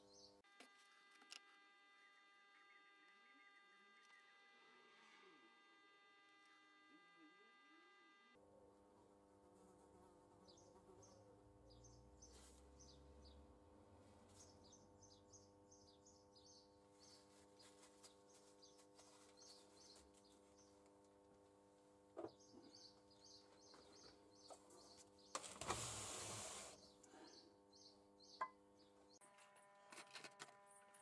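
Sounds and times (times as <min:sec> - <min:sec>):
steady electrical hum: 0:00.0 - 0:10.7.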